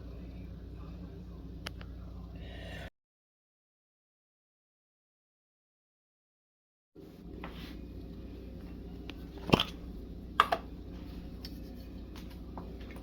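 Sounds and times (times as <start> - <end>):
steady low hum: 0.0 - 2.9, 7.0 - 13.0.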